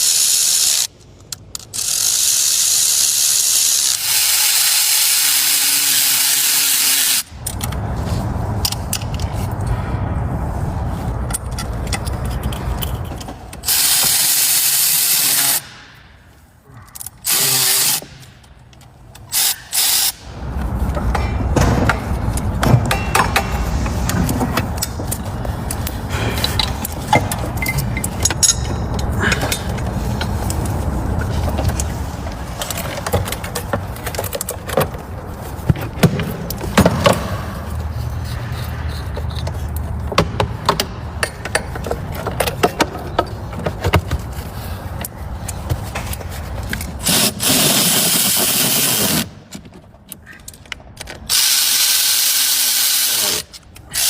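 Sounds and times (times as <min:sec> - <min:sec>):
power tool bursts: 0:17.3 - 0:18.1
metallic clanks of tools: 0:21.1 - 0:25.3, 0:26.1 - 0:29.8.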